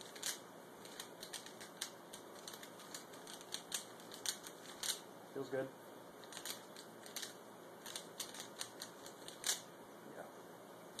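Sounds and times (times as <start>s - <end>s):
puzzle cube layers clicking: 0.0s - 5.0s, 6.2s - 9.6s.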